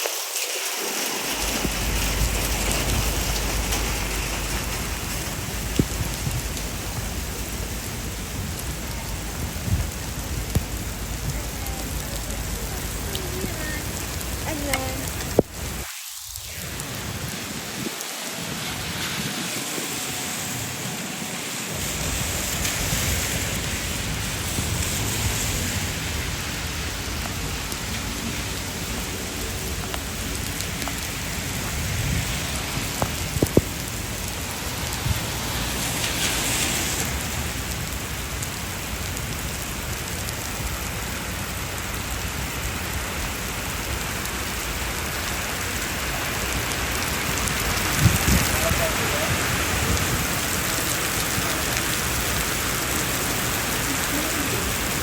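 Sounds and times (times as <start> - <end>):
heavy rain splashing on street: 0.0 - 55.0.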